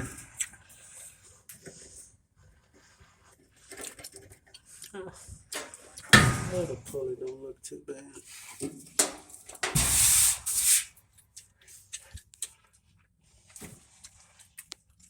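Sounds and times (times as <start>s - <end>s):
dryer parts scraping: 8.3s - 10.9s.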